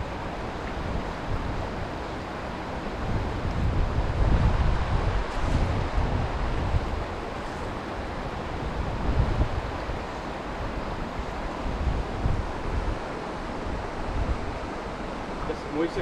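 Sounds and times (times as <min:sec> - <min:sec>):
wind buffeting microphone: 0:00.0 - 0:15.4
stream water rushing: 0:00.0 - 0:16.0.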